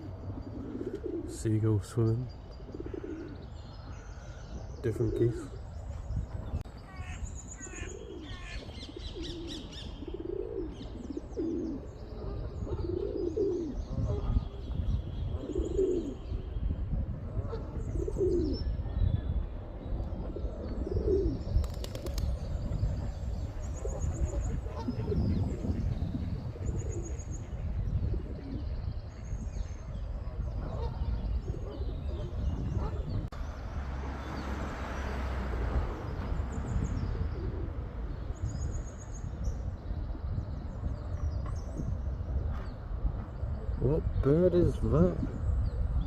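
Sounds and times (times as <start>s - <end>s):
pigeons cooing: 0.0s - 5.8s, 7.6s - 16.6s, 17.2s - 18.8s, 20.1s - 33.3s, 35.4s - 39.0s
small birds chirping: 0.0s - 35.2s.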